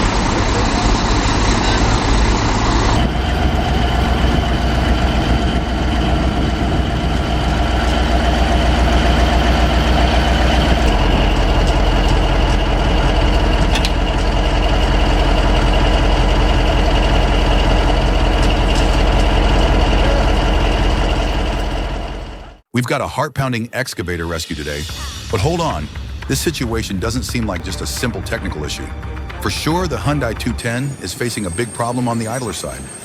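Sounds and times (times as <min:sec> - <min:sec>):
heavy machine engine running: 0:00.0 - 0:22.6.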